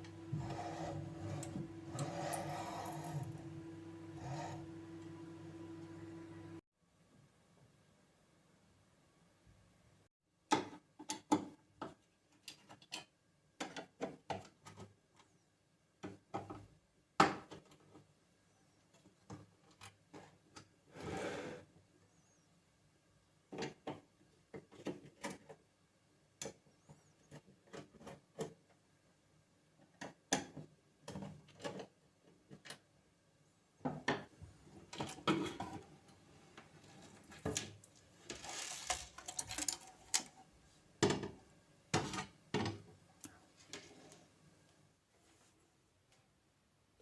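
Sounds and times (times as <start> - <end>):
scraping or rustling: 36.8 - 40.4
hardware parts clicking and knocking: 37.4 - 41.4.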